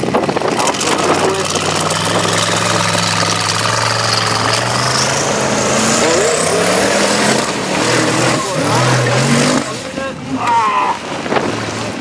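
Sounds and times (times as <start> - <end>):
high turbo whine: 0.0 - 10.3
truck engine revving: 0.0 - 10.5.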